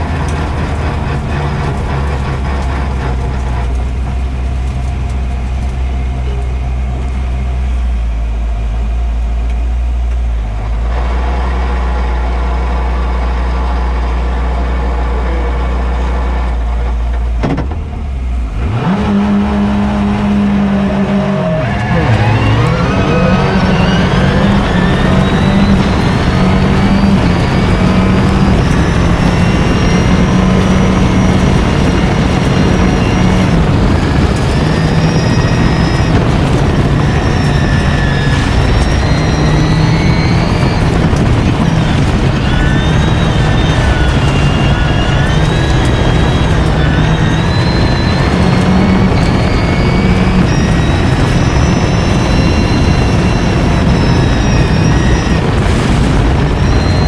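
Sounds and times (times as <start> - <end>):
vehicle engine revving hard: 18.5 - 57.0.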